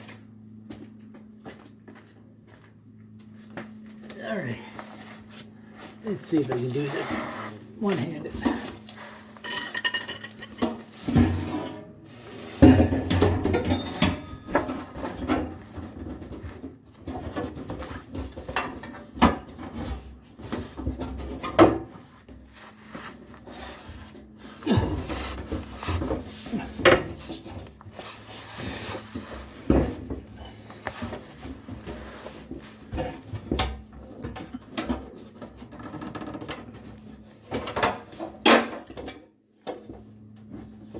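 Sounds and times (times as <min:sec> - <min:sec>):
tools and parts clanking: 0:08.0 - 0:22.4.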